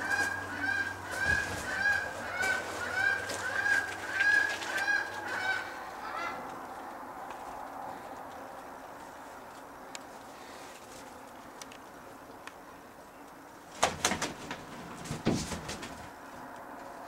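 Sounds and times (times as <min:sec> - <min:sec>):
bird honking calls: 0:00.0 - 0:06.4.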